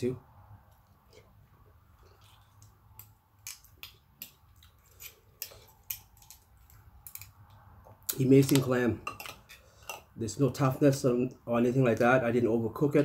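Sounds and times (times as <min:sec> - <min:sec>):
person chewing clams: 0:01.0 - 0:07.5.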